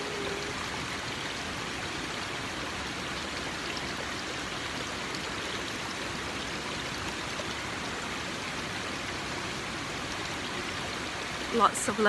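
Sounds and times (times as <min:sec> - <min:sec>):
waterfall roaring: 0:00.0 - 0:01.5.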